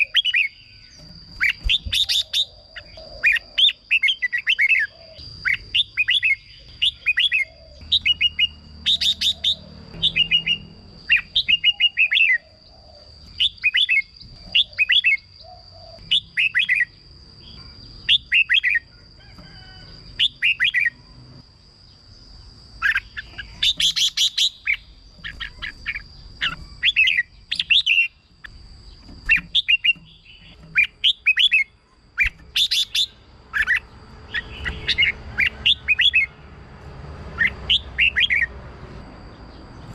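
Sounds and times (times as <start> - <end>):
bird singing whistled phrases: 1.4 - 12.5.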